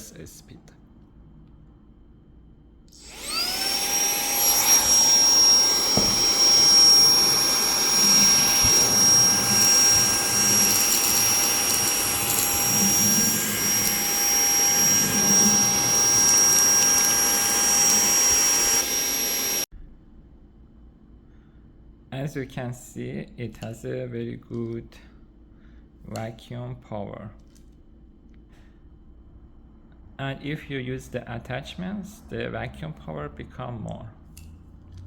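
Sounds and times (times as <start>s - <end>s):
handheld vacuum motor whine: 2.9s - 19.7s.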